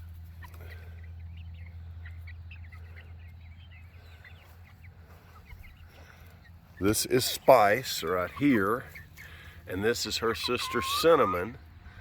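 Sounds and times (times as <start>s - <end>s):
hens chirping: 0.0s - 12.0s.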